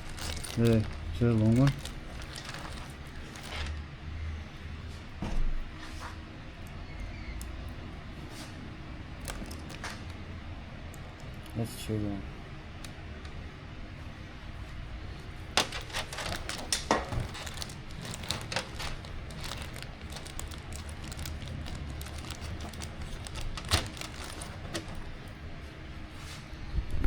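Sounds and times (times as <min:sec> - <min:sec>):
small parts clicking and rattling: 0:00.0 - 0:03.8, 0:15.6 - 0:25.2.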